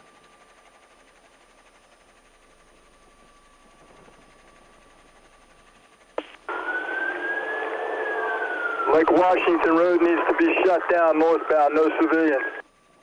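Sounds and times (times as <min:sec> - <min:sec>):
faint steady tone: 0:00.0 - 0:13.0
radio static hiss and hum: 0:06.2 - 0:12.6.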